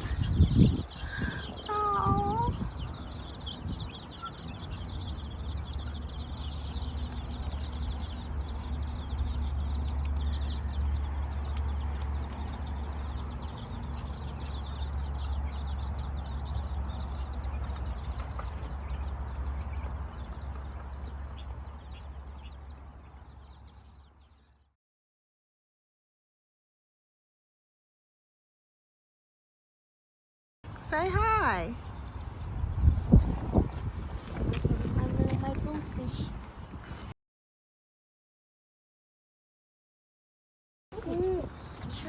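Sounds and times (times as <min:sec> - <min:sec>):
steady low rumble: 0:00.0 - 0:23.5
baby chicks peeping: 0:00.0 - 0:24.7, 0:30.8 - 0:37.1, 0:41.0 - 0:42.0.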